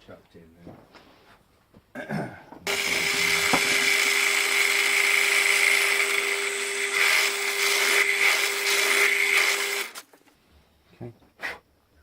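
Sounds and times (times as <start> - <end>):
power tool drilling wood: 2.7 - 10.0.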